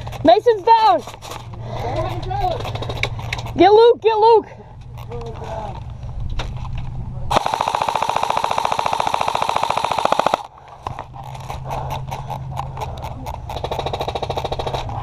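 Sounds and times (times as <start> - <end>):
airsoft gun single shots: 7.3 - 10.4
airsoft gun full-auto burst: 7.3 - 10.5, 13.5 - 14.8.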